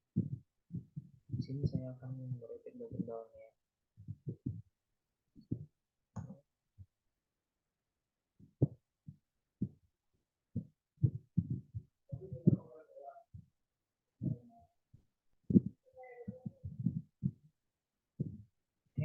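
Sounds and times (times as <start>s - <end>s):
dull low thumps: 0.2s - 3.2s, 4.0s - 4.7s, 10.6s - 13.4s, 15.5s - 17.4s, 18.2s - 18.5s.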